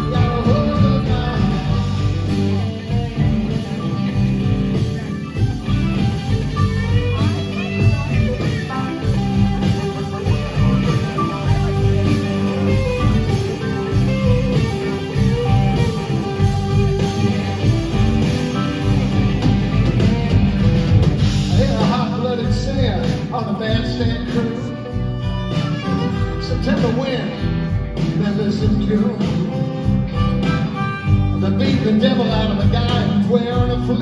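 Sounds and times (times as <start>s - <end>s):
live rock band playing: 0.0s - 34.0s
lead guitar sliding in pitch: 24.2s - 27.6s.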